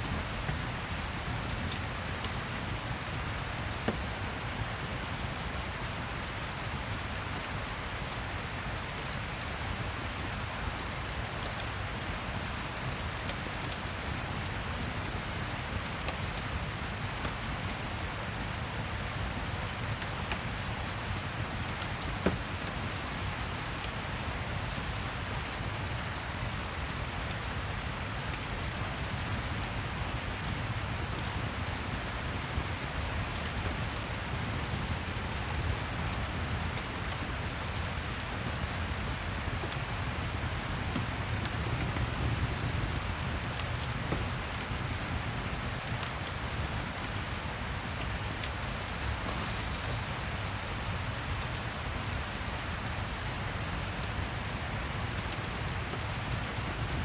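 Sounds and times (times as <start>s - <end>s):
steady rain: 0.0s - 57.0s
fireplace crackling: 22.4s - 27.4s, 47.6s - 52.2s.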